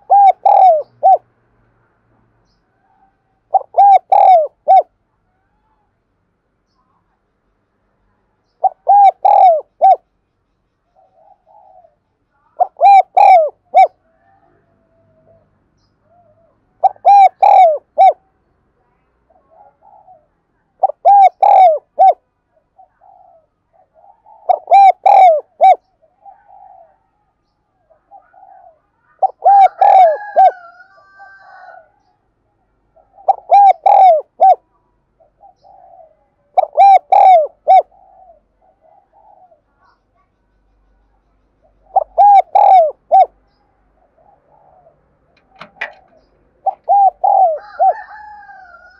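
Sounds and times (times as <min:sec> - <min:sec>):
dove cooing: 0:00.0 - 0:01.2, 0:02.8 - 0:04.9, 0:08.6 - 0:10.0, 0:11.0 - 0:18.3, 0:19.3 - 0:32.0, 0:32.9 - 0:40.0, 0:41.6 - 0:48.9
soft low coos: 0:12.6 - 0:32.1, 0:46.1 - 0:48.9.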